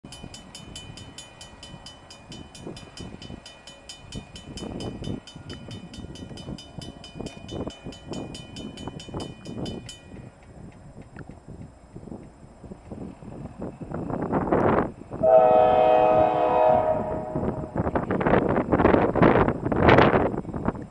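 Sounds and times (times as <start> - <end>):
rapid metallic ringing: 0.0 - 10.4
freight train rumbling past: 0.0 - 20.9.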